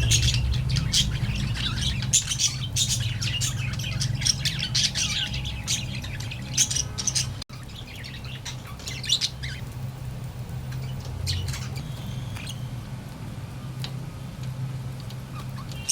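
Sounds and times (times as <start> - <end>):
budgerigars chirping: 0.0 - 9.6, 10.7 - 12.8
steady low hum: 0.0 - 15.9.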